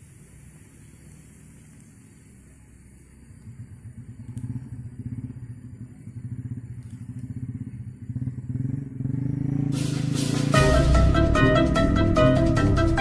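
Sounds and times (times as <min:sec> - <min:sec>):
small engine puttering: 0:00.0 - 0:11.1
background music: 0:09.8 - 0:13.0.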